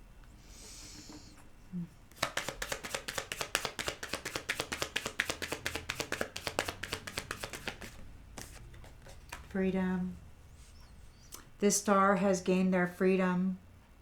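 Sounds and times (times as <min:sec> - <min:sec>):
cards being shuffled by hand: 0:02.1 - 0:09.6.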